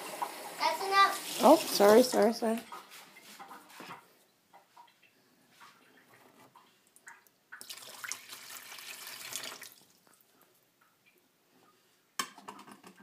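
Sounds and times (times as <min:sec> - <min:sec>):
water pouring into a cup: 0:07.6 - 0:10.2.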